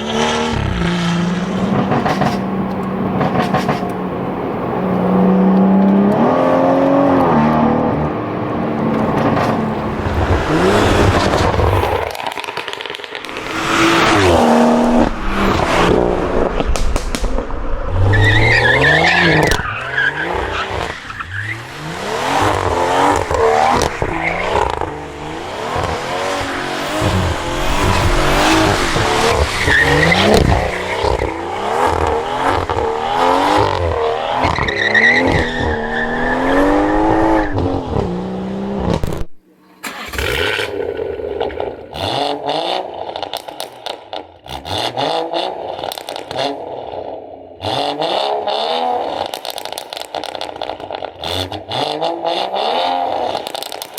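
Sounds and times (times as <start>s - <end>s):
car engine revving: 0.0s - 43.4s
exhaust cracks: 8.7s - 42.1s.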